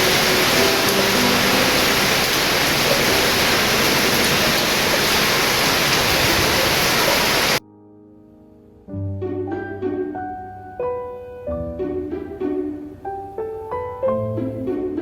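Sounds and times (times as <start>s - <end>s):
heavy rain pouring: 0.0s - 7.6s.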